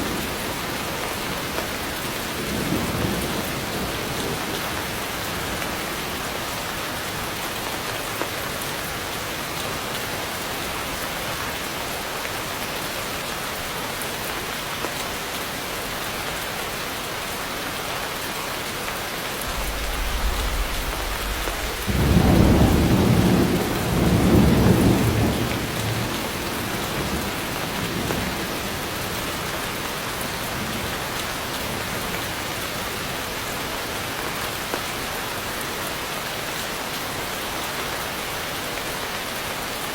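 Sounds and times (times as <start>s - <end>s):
heavy rain falling: 0.0s - 39.9s
thunder rumbling: 19.4s - 27.3s.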